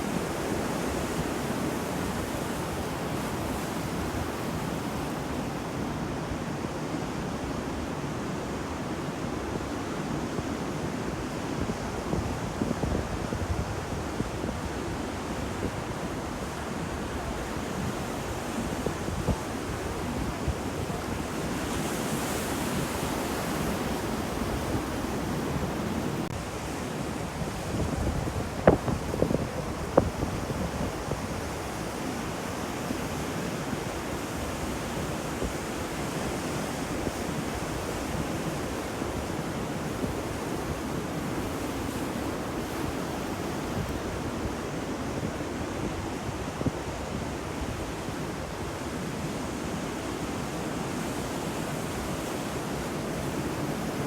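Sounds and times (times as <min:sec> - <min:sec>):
sea waves washing on shore: 0:00.0 - 0:54.0
wind on microphone: 0:11.6 - 0:49.8.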